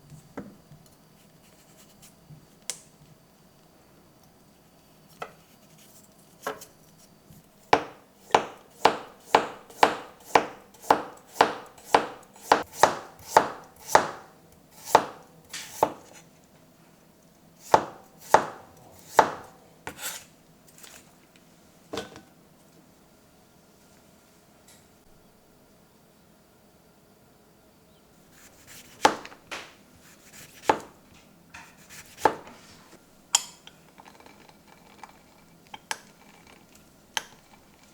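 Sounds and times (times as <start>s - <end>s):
knife chopping on cutting board: 7.7s - 16.2s, 17.6s - 20.2s, 28.4s - 31.0s, 31.6s - 32.6s.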